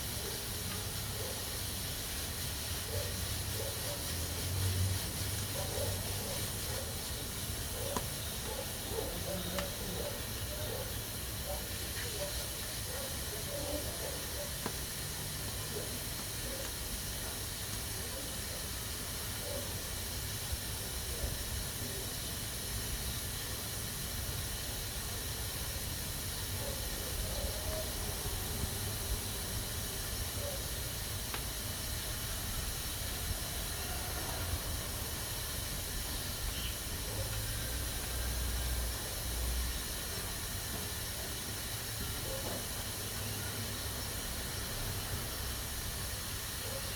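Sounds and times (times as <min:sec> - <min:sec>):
pressure cooker hissing: 0:00.0 - 0:46.9.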